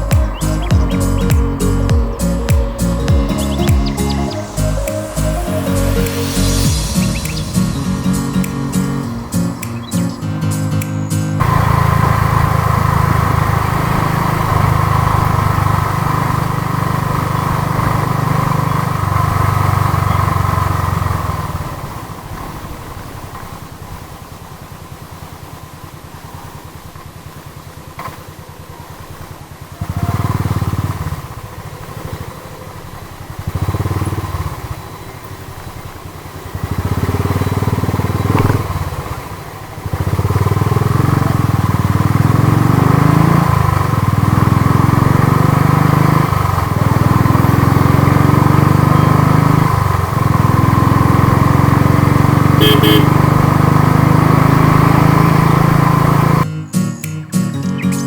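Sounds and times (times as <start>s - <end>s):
motorcycle engine under throttle: 11.4s - 56.5s.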